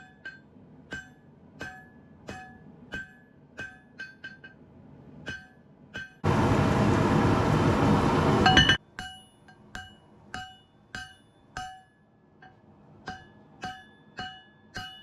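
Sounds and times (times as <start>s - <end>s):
hammer striking steel on anvil: 0.0s - 4.6s, 5.2s - 6.4s, 8.4s - 15.0s
loud rushing noise: 6.2s - 8.8s.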